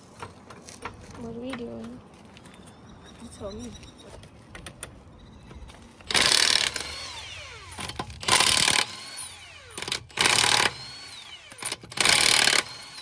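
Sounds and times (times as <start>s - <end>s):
impact wrench bursts: 6.1s - 13.0s.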